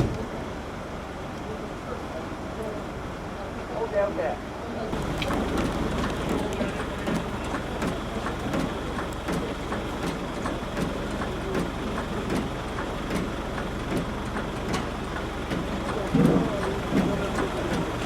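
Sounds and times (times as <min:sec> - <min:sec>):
vehicle engine running: 0:04.9 - 0:18.0.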